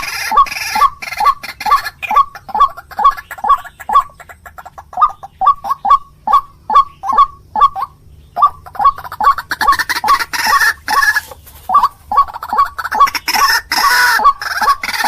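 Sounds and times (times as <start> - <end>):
waterhen short calls: 0.0 - 15.0.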